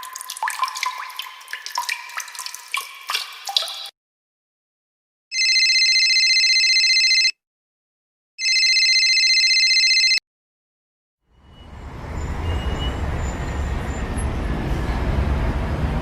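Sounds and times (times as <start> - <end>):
telephone ringing: 5.3 - 7.4, 8.4 - 10.2.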